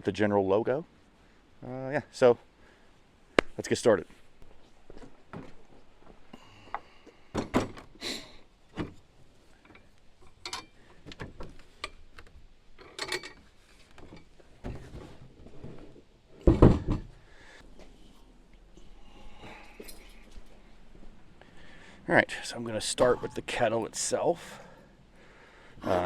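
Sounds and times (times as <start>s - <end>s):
metal grill parts clattering: 12.8s - 15.0s, 23.0s - 23.6s.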